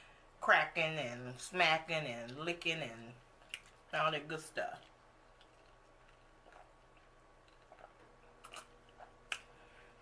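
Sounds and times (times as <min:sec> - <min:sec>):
chewing with mouth clicks: 0:03.4 - 0:03.9, 0:04.8 - 0:09.6.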